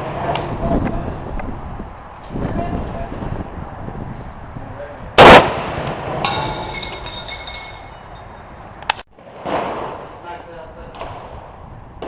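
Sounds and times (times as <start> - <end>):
rifle gunshot: 5.2 - 5.8
ringing metallic clink: 6.3 - 8.5.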